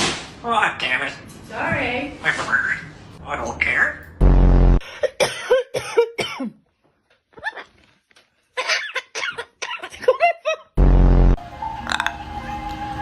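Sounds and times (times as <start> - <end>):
low buzzing blare: 4.2 - 4.8, 10.8 - 12.0.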